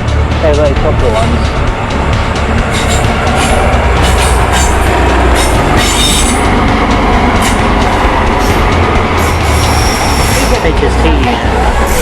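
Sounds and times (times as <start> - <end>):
high-pitched wheel squeals: 2.7 - 6.5, 8.3 - 10.7.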